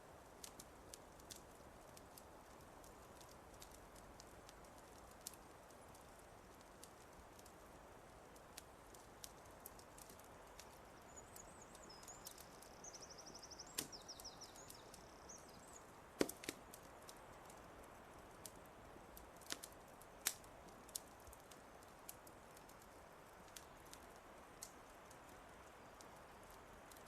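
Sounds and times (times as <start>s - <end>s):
fire popping: 0.0s - 27.0s
soft steady hiss: 0.0s - 27.0s
wood fire crackling: 0.0s - 27.0s
songbird calling: 11.0s - 15.8s.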